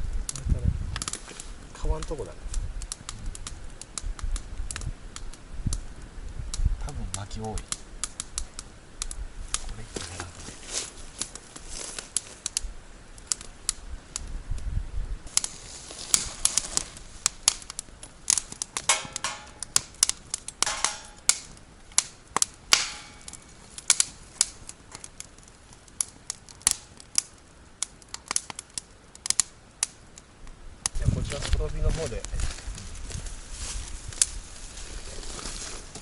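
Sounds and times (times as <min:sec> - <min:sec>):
campfire crackling: 0:00.0 - 0:36.0
fire hissing: 0:00.0 - 0:36.0
sharp pops and snaps: 0:00.2 - 0:14.7, 0:15.3 - 0:32.5.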